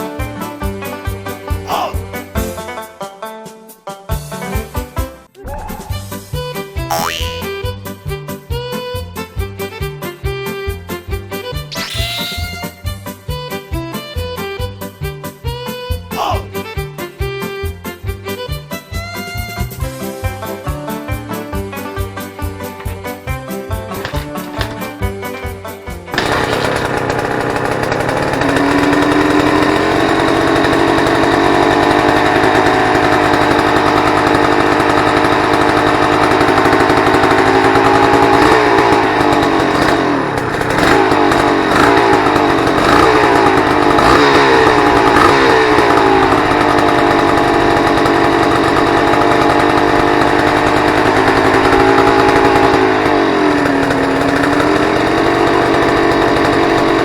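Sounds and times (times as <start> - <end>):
two-stroke engine revving: 1.7 - 2.0, 6.9 - 7.6, 23.8 - 57.0.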